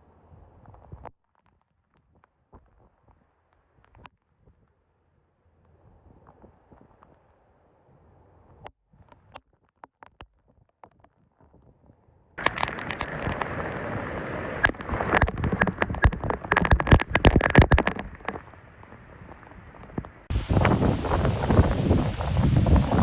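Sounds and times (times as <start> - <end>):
raindrops tapping: 12.4 - 18.5, 20.3 - 23.0
wind-driven rain: 12.4 - 23.0.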